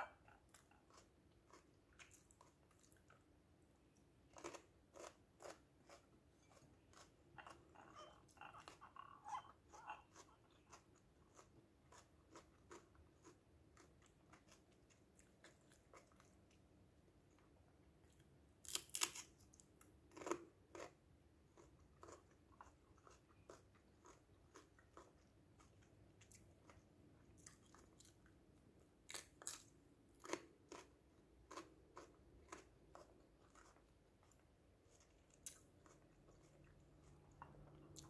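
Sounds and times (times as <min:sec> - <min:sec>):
crunchy pepper bites: 0:18.6 - 0:21.0, 0:29.0 - 0:32.8.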